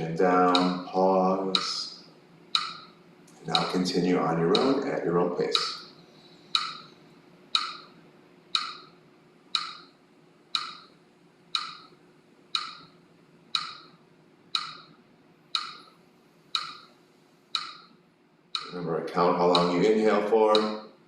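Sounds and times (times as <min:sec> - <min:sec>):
metronome ticking: 0:00.4 - 0:00.9, 0:01.5 - 0:01.9, 0:02.5 - 0:02.9, 0:03.5 - 0:05.9, 0:06.5 - 0:06.9, 0:07.5 - 0:07.9, 0:08.5 - 0:08.9, 0:09.5 - 0:09.9, 0:10.5 - 0:12.9, 0:13.5 - 0:13.9, 0:14.5 - 0:15.9, 0:16.5 - 0:16.9, 0:17.5 - 0:17.9, 0:18.6 - 0:20.9.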